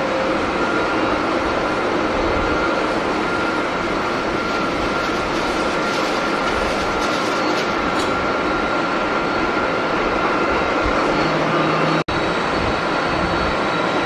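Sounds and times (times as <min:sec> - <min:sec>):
high engine whine: 0:00.0 - 0:14.0
jet engines rushing: 0:00.0 - 0:14.0.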